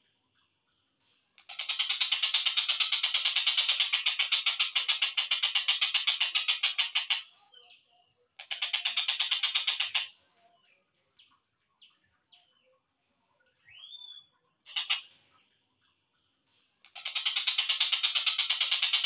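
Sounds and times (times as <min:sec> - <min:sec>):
kingfisher chattering calls: 0:08.4 - 0:10.1, 0:14.7 - 0:15.1.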